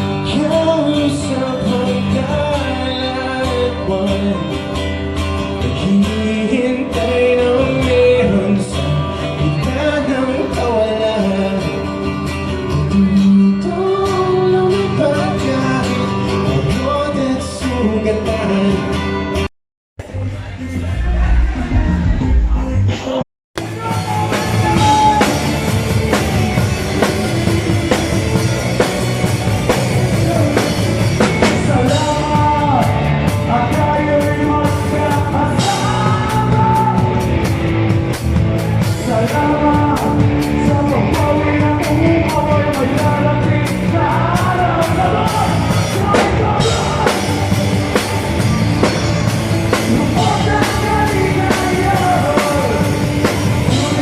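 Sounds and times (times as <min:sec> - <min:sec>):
live rock band playing: 0:00.0 - 0:19.5, 0:23.1 - 0:54.0
drum kit: 0:17.6 - 0:54.0
melodic lead line: 0:23.6 - 0:54.0.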